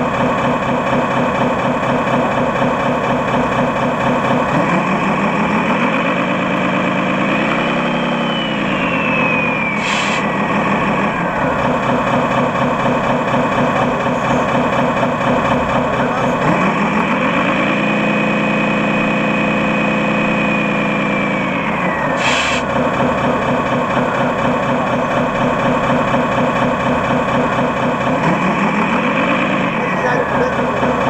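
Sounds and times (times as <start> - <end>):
model truck motor whine: 0.0 - 31.0
short hiss: 22.2 - 22.6.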